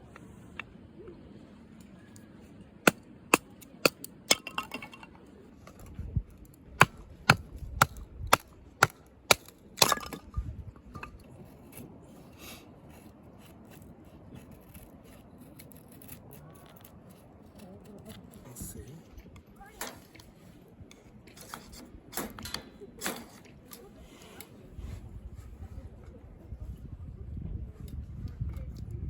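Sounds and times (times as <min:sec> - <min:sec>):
sharp tool strikes: 0:06.8 - 0:10.2
wood cracking: 0:06.8 - 0:10.3.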